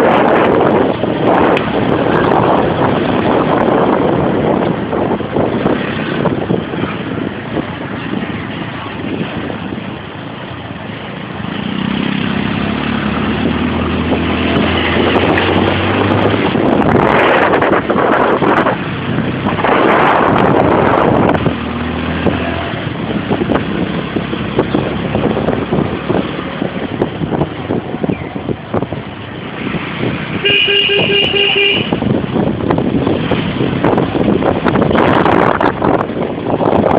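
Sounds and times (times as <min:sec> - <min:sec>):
wind buffeting microphone: 0:00.0 - 0:36.9.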